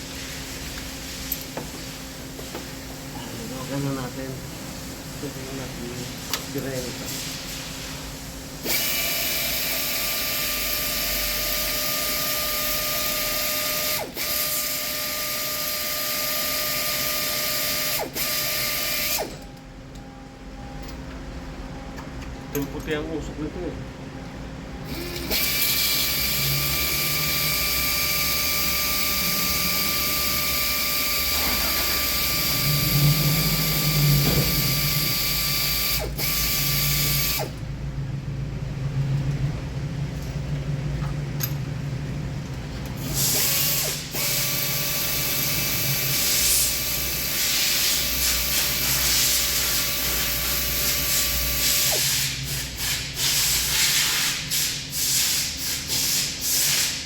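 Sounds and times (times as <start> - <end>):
small motor whining: 8.6 - 19.4, 24.9 - 37.6.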